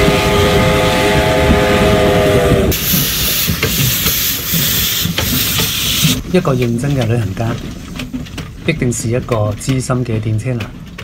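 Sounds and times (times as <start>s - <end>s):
train whistle chord: 0.0s - 3.3s
train hissing: 0.0s - 7.1s
train rumbling: 0.0s - 11.0s.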